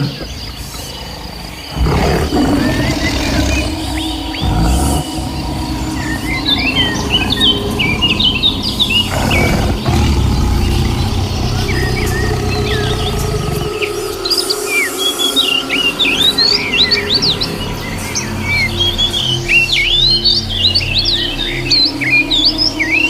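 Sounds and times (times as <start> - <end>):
small birds chirping: 0.0 - 23.0
steady low rumble: 2.6 - 14.3.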